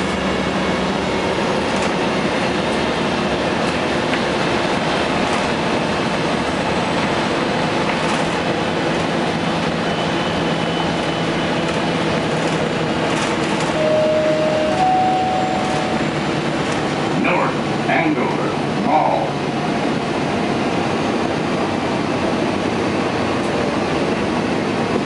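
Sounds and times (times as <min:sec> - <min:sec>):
diesel bus engine running: 0:00.0 - 0:25.0
road noise: 0:00.0 - 0:25.0
two short steady tones: 0:13.8 - 0:16.2.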